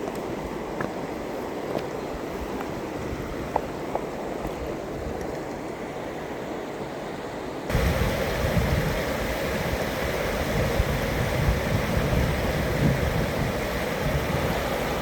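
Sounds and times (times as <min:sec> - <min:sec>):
waterfall rushing: 0:07.7 - 0:15.0.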